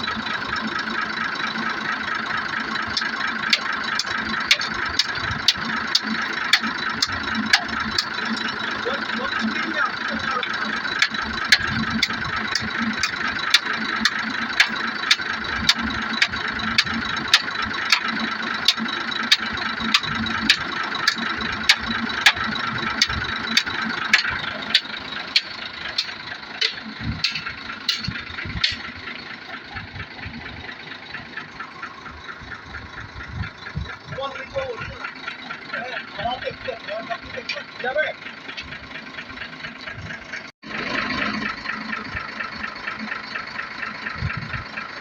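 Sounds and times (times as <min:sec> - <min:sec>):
vehicle engine running: 0:00.0 - 0:45.0
sharp clicks: 0:10.4 - 0:29.2.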